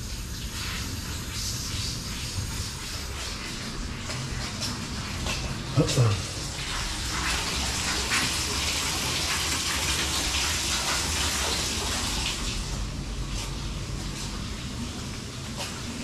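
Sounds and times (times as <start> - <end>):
faucet water running into sink: 0.0 - 12.8.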